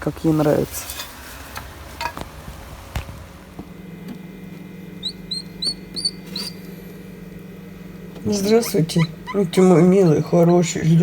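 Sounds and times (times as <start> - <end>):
steady low hum: 0.0 - 11.0
small bird chirping: 5.0 - 6.7.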